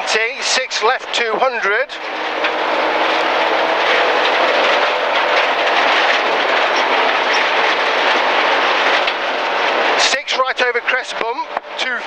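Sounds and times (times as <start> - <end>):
car engine running: 0.0 - 12.0
tyres roaring on gravel: 0.0 - 12.0.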